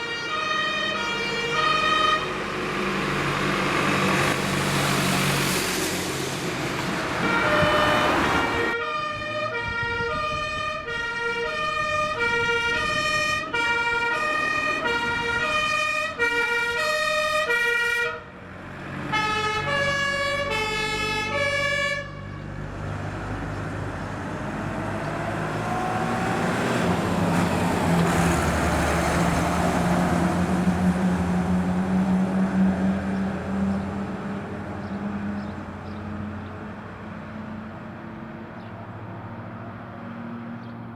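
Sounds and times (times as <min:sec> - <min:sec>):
fire engine two-tone siren: 0:00.0 - 0:02.6, 0:07.2 - 0:18.4, 0:19.1 - 0:22.6
fire truck engine and tyres: 0:00.0 - 0:40.9.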